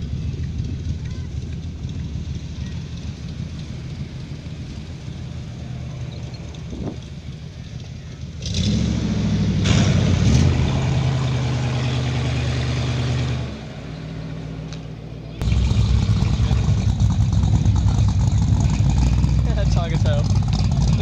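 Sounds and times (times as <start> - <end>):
car engines at low speed: 0.0 - 21.0
loud engine revving: 8.4 - 14.6, 15.4 - 21.0.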